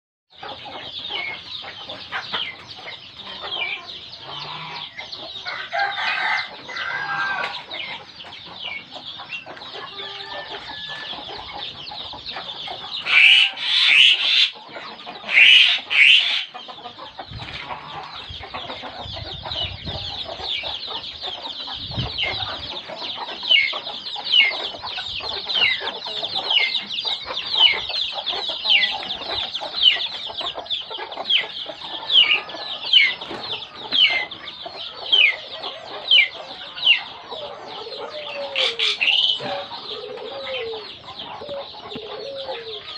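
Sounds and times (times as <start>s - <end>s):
birds chirping: 0.3s - 42.9s
harsh bird calls: 0.3s - 42.9s.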